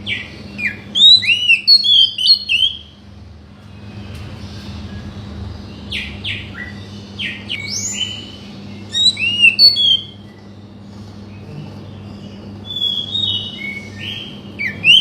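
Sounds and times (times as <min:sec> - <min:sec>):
faint steady hum: 0:00.0 - 0:15.0
bird singing whistles: 0:00.1 - 0:02.9, 0:05.9 - 0:10.3, 0:12.7 - 0:15.0.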